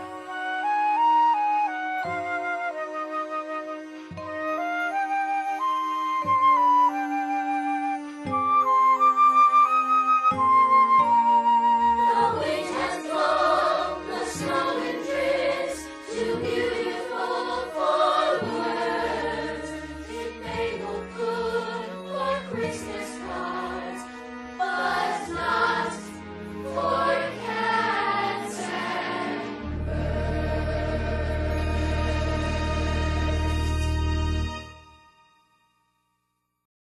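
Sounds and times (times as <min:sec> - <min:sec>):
choir singing: 0:12.0 - 0:34.1.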